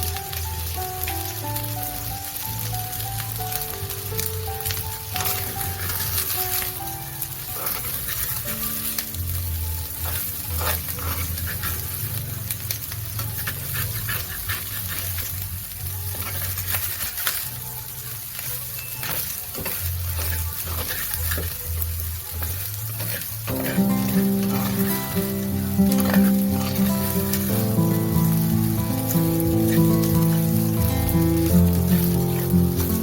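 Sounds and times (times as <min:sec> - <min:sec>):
rice sizzling in oil: 0:00.0 - 0:33.0
utensil scraping and clicking on pan: 0:07.5 - 0:17.5, 0:18.4 - 0:33.0.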